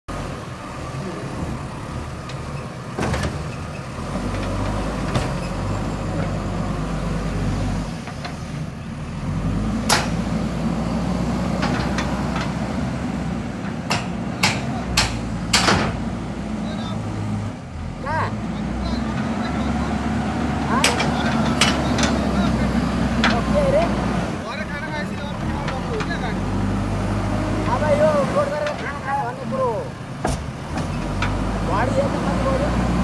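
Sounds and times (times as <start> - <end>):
diesel engine under load: 0.1 - 33.0
sharp knocks: 9.8 - 10.3, 13.6 - 16.1.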